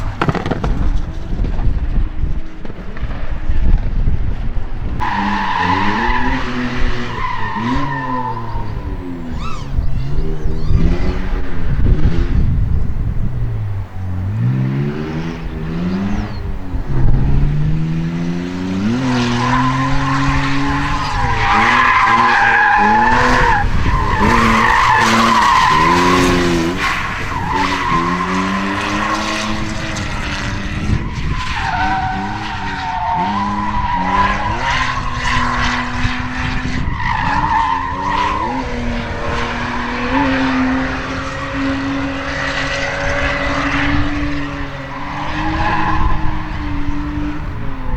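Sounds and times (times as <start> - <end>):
car engine revving: 0.0 - 47.9
tyres squealing: 5.0 - 11.4, 18.8 - 29.6.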